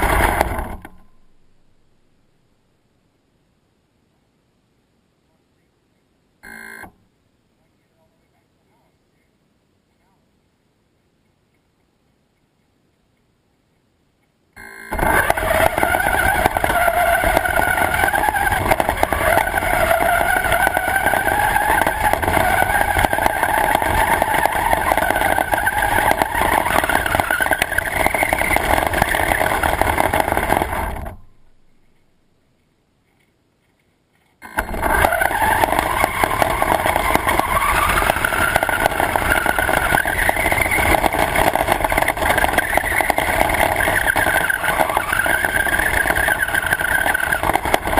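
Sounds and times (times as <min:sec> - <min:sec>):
radio-controlled car motor whining: 0:00.0 - 0:01.0, 0:14.6 - 0:31.6, 0:34.4 - 0:47.9
wheels rumbling on ground: 0:00.0 - 0:02.4, 0:14.6 - 0:47.9.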